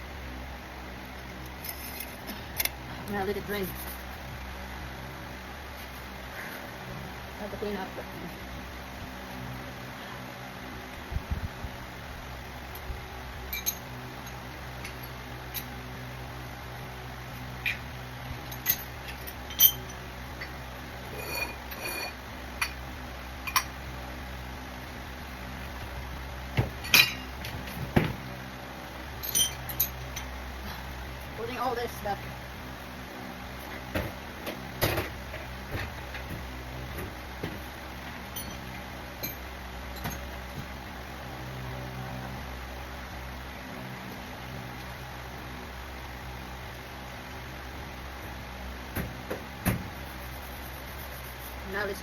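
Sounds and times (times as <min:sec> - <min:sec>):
steady low hum: 0:00.0 - 0:52.0
tools clinking and knocking: 0:13.5 - 0:15.7, 0:26.6 - 0:27.6, 0:29.2 - 0:30.3, 0:38.3 - 0:40.3.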